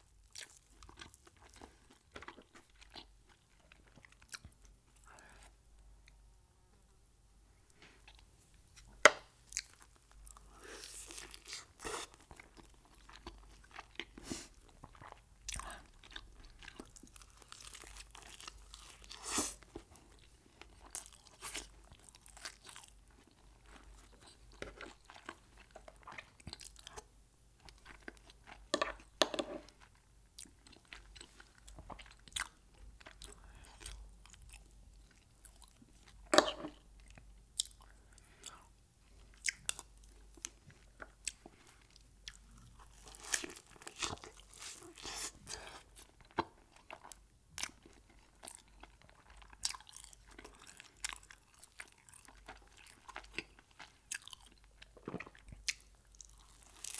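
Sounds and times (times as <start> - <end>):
crunchy chewing: 39.4 - 56.9.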